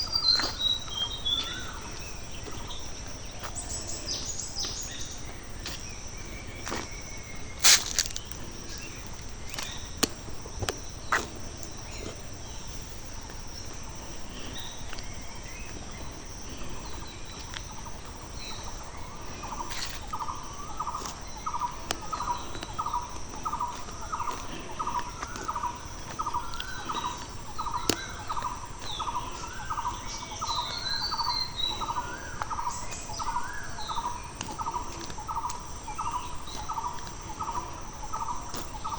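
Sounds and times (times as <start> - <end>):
bird chirps: 0.0 - 10.0, 11.0 - 38.9
high-pitched insect drone: 11.0 - 38.9.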